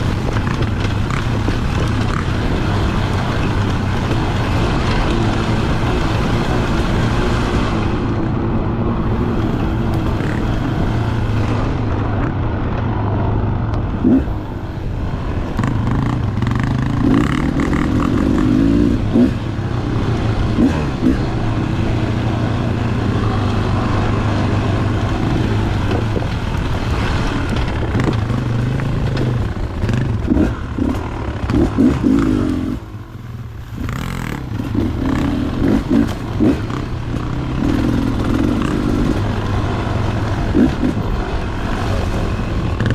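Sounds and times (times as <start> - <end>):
knocks and clatter: 0.0 - 5.6, 25.5 - 32.3
two-stroke dirt bike engine: 0.0 - 8.3, 9.2 - 11.5, 13.9 - 42.9.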